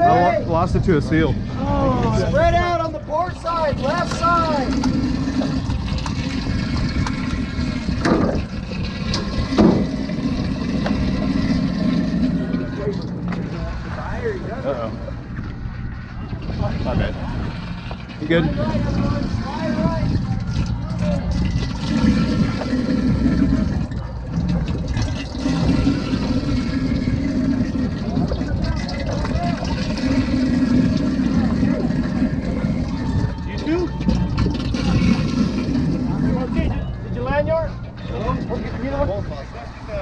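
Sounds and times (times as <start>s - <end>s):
boat engine rumbling: 0.0s - 40.0s
water rushing and sloshing: 3.1s - 15.1s, 16.4s - 36.7s
water splashing against boat: 3.8s - 14.1s.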